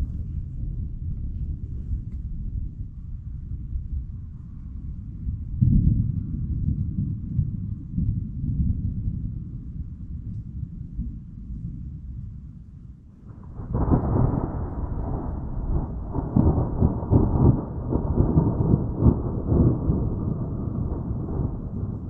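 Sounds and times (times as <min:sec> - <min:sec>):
thunder rolling with cracks: 0:13.2 - 0:22.0.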